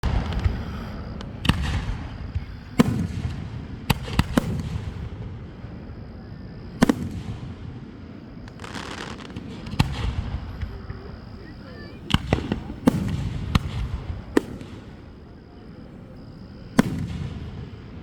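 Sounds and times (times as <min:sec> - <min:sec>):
fireworks bangs: 0:00.0 - 0:06.0, 0:06.6 - 0:18.0
fireworks crackling: 0:00.0 - 0:06.1, 0:06.8 - 0:18.0.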